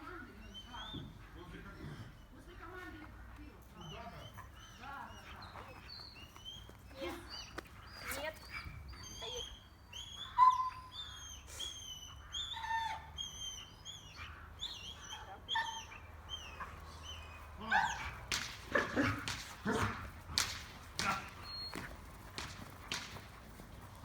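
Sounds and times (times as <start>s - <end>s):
puppy whining: 8.0s - 20.1s, 21.0s - 23.0s
puppy yapping: 9.1s - 23.3s.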